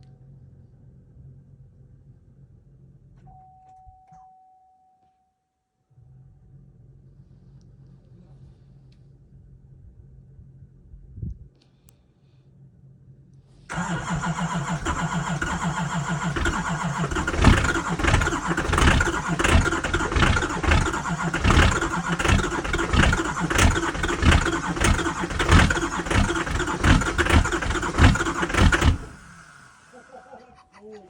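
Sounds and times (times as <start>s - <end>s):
diesel engine starting and running: 13.7s - 30.3s.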